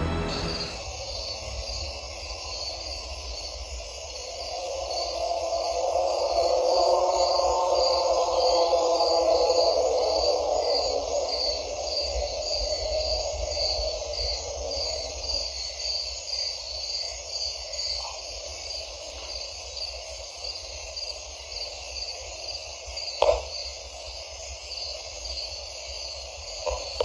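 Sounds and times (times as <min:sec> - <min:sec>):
low rumble: 0:00.0 - 0:00.8
insects chirping: 0:00.0 - 0:27.0.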